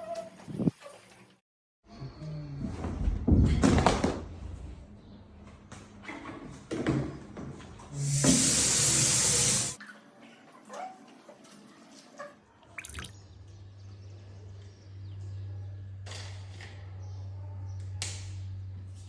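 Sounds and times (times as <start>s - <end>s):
tap water running into sink: 8.0s - 9.8s.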